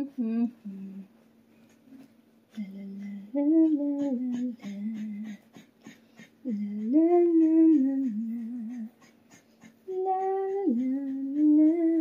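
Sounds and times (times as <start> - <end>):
woman humming: 0.0 - 1.1, 2.5 - 5.7, 6.4 - 9.0, 9.9 - 12.0.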